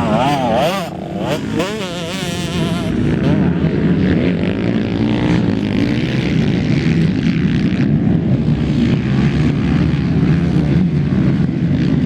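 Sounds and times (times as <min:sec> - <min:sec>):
motorcycle engines droning: 0:00.0 - 0:12.0.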